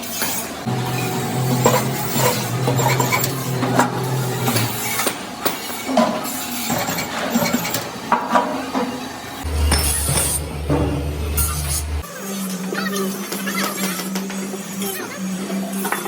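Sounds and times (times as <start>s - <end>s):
low hum: 0.7s - 5.0s, 9.4s - 12.0s
sheet metal clinking: 0.7s - 5.3s, 9.4s - 12.0s.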